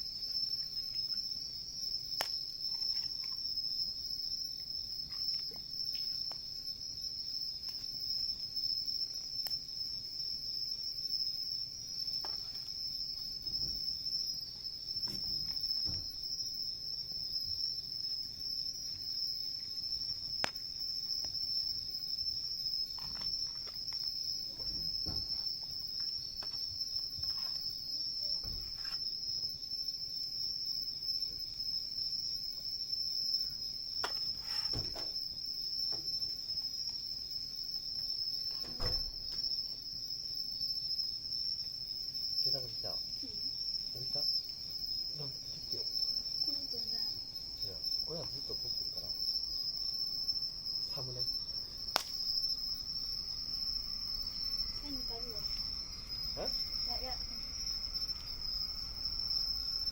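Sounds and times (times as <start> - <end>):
crickets chirping: 0.0 - 59.9
campfire crackling: 7.4 - 9.8, 49.1 - 59.9.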